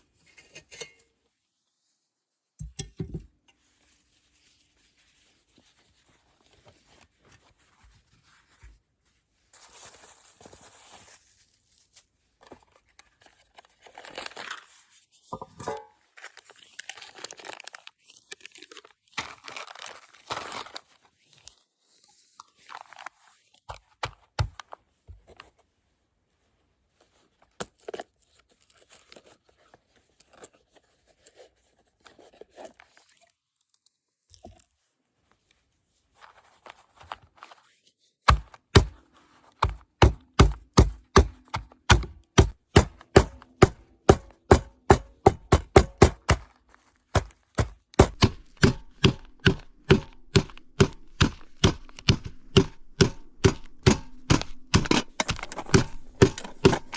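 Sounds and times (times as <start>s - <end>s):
bag rustling and crinkling: 9.5s - 12.0s, 16.0s - 23.6s.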